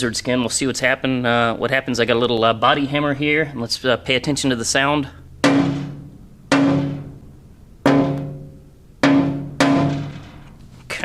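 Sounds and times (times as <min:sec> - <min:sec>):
hammer tapping ringing metal panel: 0:05.4 - 0:10.6.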